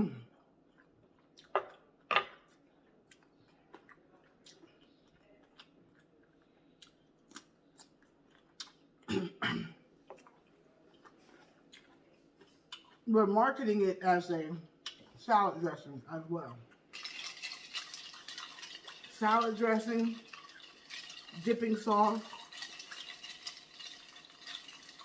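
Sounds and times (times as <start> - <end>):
chewing food: 0.3 - 9.1, 10.0 - 13.1, 16.6 - 21.5, 22.1 - 25.0.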